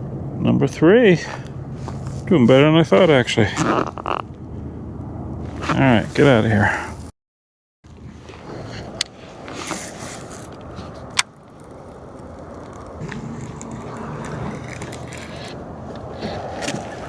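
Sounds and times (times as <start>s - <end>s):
gear rubbing and scraping: 1.3s - 4.4s, 5.4s - 6.7s, 8.1s - 17.0s.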